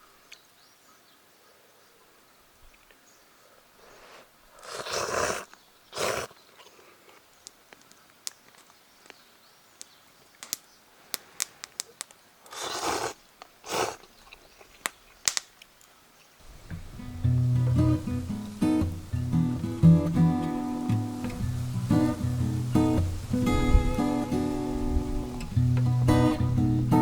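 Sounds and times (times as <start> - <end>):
fire pops and snaps: 9.8 - 12.2, 14.8 - 15.8
wood fire crackling: 14.8 - 15.8, 16.4 - 27.0
short rushing noise bursts: 16.4 - 26.9.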